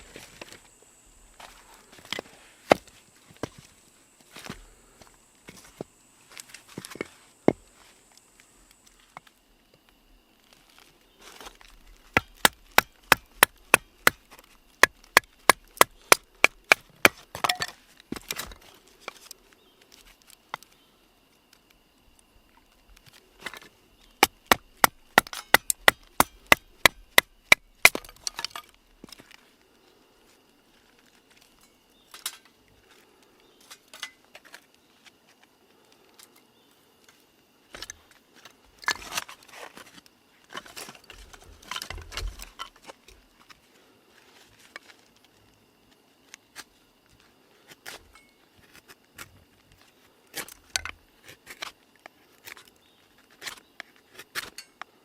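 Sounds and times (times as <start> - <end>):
firewood being chopped: 2.0 - 3.6, 11.4 - 19.4, 23.4 - 29.4, 40.5 - 42.8, 50.4 - 51.7.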